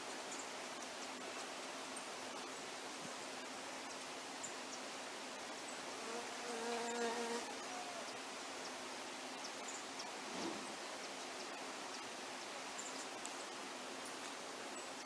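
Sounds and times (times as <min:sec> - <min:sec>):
steady outdoor hiss: 0:00.0 - 0:15.0
insect wings buzzing past: 0:05.9 - 0:08.0.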